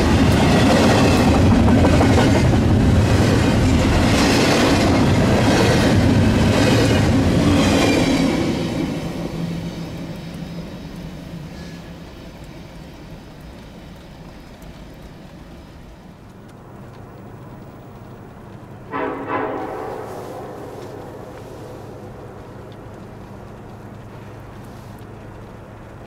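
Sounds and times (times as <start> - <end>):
train rumbling past: 0.0 - 26.0
locomotive horn blasts: 18.9 - 21.8.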